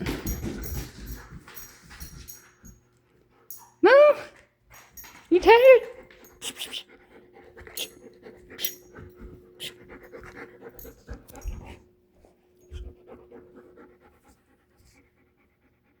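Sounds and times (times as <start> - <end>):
puppy panting: 4.9 - 16.0.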